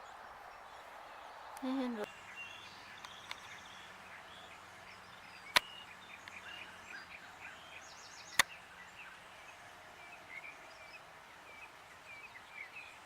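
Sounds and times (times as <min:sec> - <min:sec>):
small birds chirping and singing: 0:00.0 - 0:13.0.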